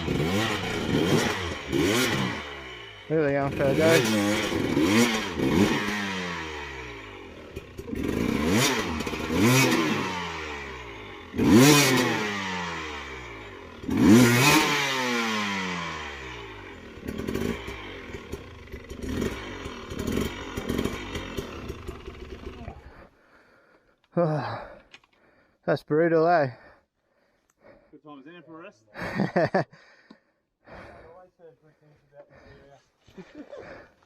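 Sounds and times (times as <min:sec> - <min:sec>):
motorbike engine revving: 0:00.0 - 0:23.1.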